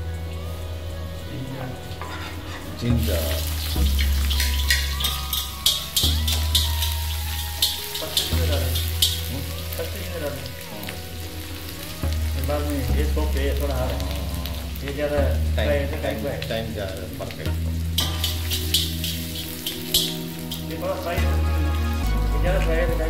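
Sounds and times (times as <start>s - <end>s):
background music: 0.0s - 23.0s
ginger sizzling in hot oil: 1.3s - 23.0s
spoon stirring in a wok: 3.4s - 9.3s, 18.0s - 20.7s.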